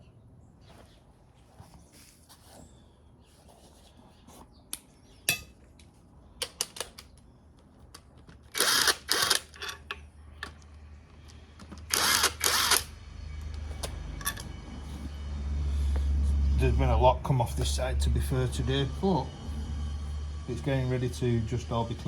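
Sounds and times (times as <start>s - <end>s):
power tool bursts: 8.5s - 9.5s, 11.9s - 12.9s
low hum: 10.4s - 22.0s.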